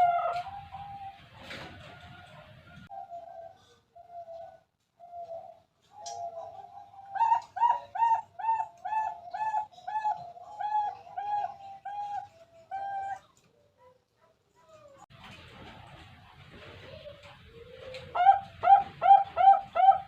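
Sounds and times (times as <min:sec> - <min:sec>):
dove cooing: 0:00.0 - 0:13.4, 0:16.9 - 0:20.0.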